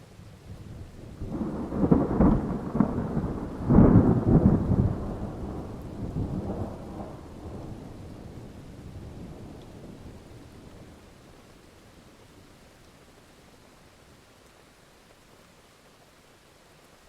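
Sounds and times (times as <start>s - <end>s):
steady rain hiss: 0.0s - 17.0s
thunder rolling: 1.1s - 11.0s.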